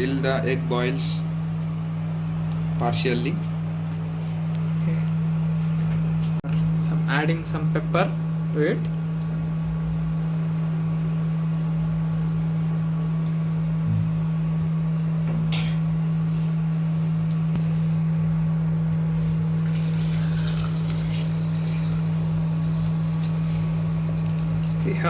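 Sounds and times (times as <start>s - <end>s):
low hum: 0.0s - 25.0s
eggs sizzling in a pan: 20.0s - 25.0s.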